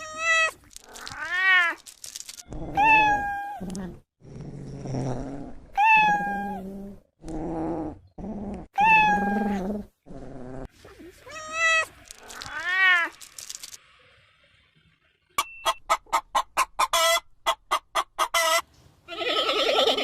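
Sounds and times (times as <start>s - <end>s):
cats meowing: 0.0s - 1.9s, 2.5s - 3.7s, 5.8s - 6.6s, 8.8s - 9.6s, 11.2s - 13.2s.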